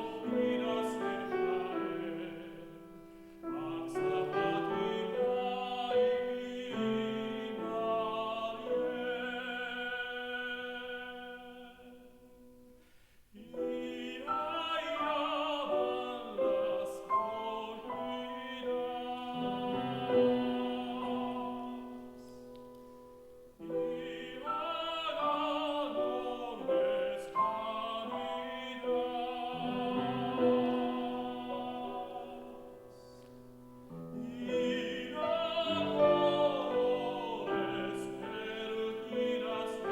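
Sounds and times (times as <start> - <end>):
piano accompaniment: 0.0 - 12.7, 13.4 - 39.9
tenor singing operatically: 23.7 - 33.0, 34.1 - 39.9.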